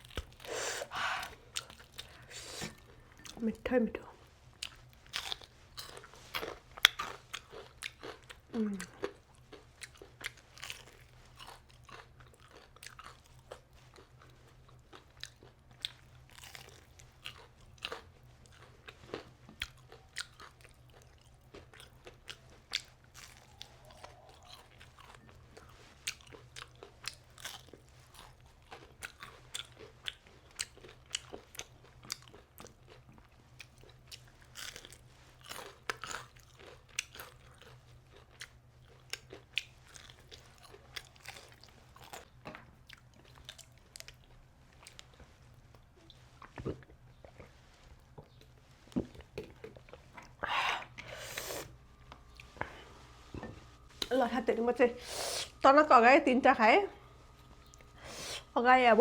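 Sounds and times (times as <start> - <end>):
crunchy food chewing: 0.0 - 3.5, 4.1 - 54.3, 57.0 - 58.6.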